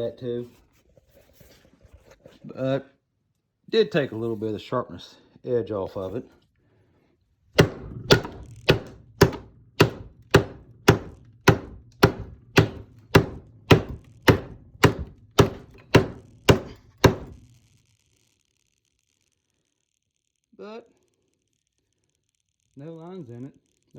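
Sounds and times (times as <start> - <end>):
knife chopping into wood: 7.6 - 17.5.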